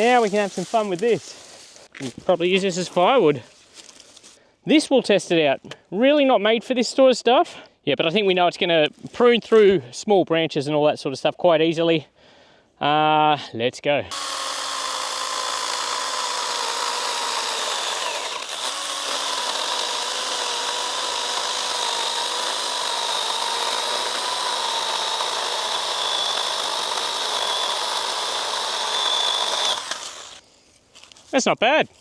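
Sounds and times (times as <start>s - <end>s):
chainsaw chain rasping in wood: 14.1s - 30.4s
electric motor whining under load: 14.1s - 30.4s.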